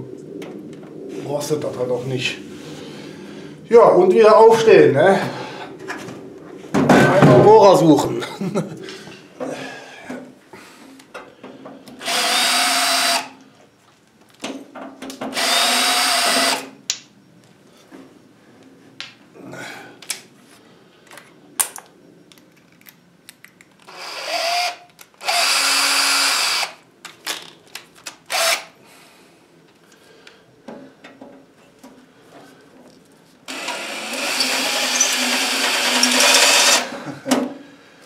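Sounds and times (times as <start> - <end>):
electric drill drilling metal: 12.0 - 13.4, 15.3 - 16.7, 23.9 - 26.8, 28.3 - 28.7, 33.5 - 36.9.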